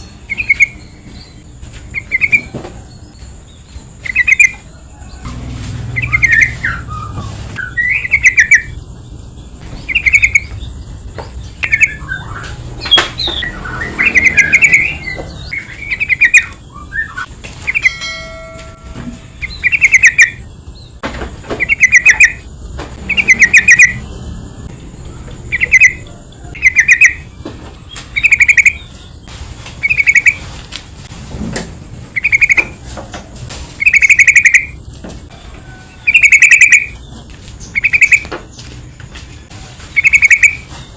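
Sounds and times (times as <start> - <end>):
bird chattering call: 4.0 - 4.6, 5.9 - 8.8, 9.8 - 10.6, 11.6 - 20.5, 21.6 - 22.4, 23.0 - 24.0, 25.4 - 27.3, 28.1 - 28.9, 29.8 - 30.4, 32.2 - 32.7, 33.8 - 34.8, 36.0 - 37.0, 37.7 - 38.3, 40.0 - 40.6.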